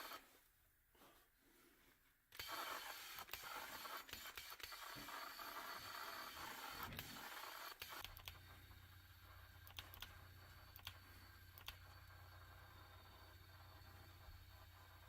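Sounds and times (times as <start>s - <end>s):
clicks: 6.8s - 8.4s, 9.6s - 11.9s.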